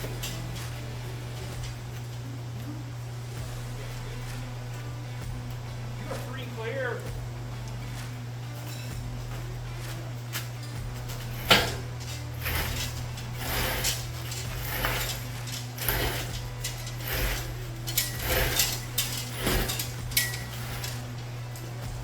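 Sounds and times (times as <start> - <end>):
steady low hum: 0.0 - 22.0
heavy metal parts clanking: 9.8 - 22.0.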